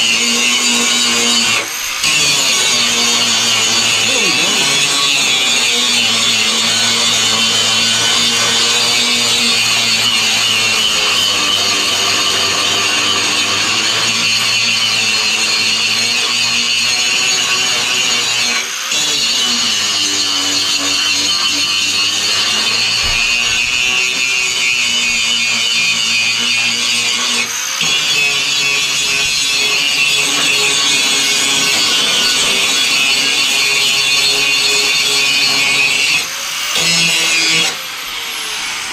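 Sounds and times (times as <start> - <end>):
angle grinder grinding metal: 0.0 - 38.9.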